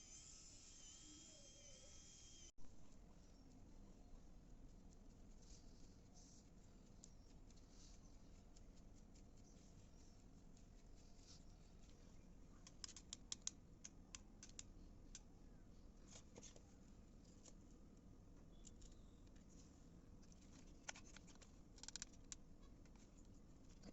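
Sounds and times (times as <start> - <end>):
craft materials clicking and scratching: 12.6 - 15.3, 20.2 - 23.9.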